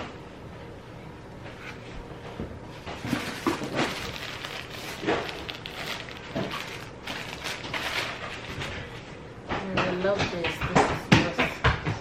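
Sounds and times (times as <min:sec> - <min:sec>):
plastic and clothing rustling: 0:01.5 - 0:09.2.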